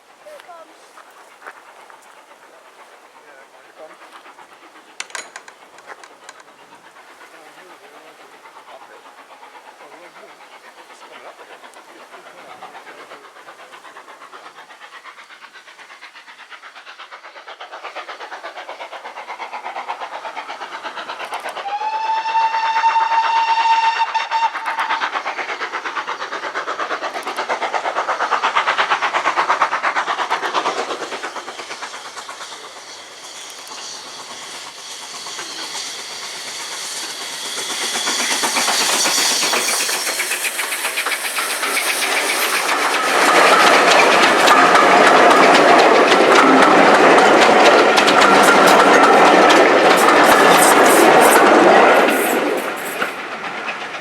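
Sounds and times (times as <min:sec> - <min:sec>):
train wheels clattering: 0:00.2 - 0:54.0
train whistle: 0:21.6 - 0:25.0, 0:49.9 - 0:53.0.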